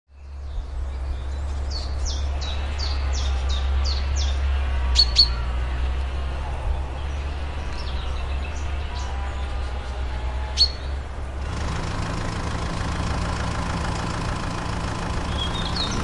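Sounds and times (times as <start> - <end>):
bird chirping: 0.1 - 6.0, 6.7 - 11.0, 14.6 - 16.0.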